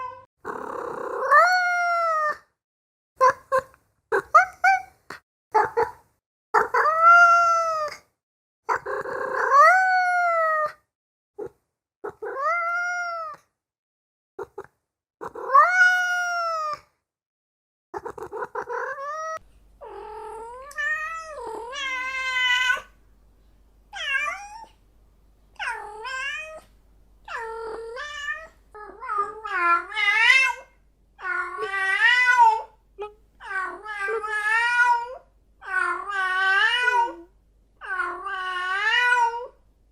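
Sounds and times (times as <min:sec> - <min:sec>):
cat meowing and yowling: 0:00.0 - 0:00.3, 0:01.2 - 0:02.5, 0:06.6 - 0:08.1, 0:08.7 - 0:10.8, 0:12.1 - 0:13.4, 0:15.2 - 0:16.9, 0:18.0 - 0:22.9, 0:24.0 - 0:24.8, 0:25.6 - 0:26.7, 0:27.3 - 0:32.8, 0:33.4 - 0:39.6.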